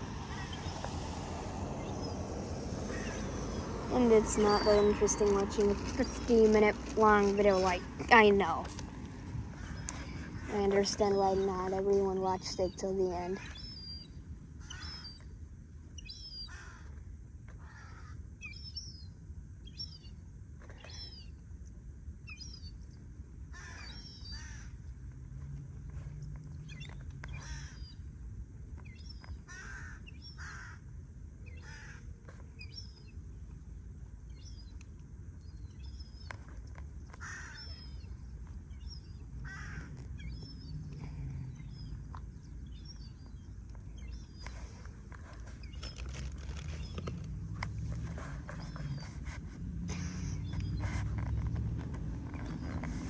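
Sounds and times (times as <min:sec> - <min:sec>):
low rumble of wind: 0:00.0 - 0:53.0
crows cawing: 0:02.8 - 0:03.8, 0:16.5 - 0:16.9, 0:17.6 - 0:18.2, 0:23.6 - 0:24.7, 0:27.4 - 0:27.9, 0:29.5 - 0:30.8, 0:31.6 - 0:32.1, 0:37.2 - 0:37.9, 0:39.4 - 0:40.0
high-pitched bird chirps: 0:02.9 - 0:15.2, 0:20.7 - 0:21.3.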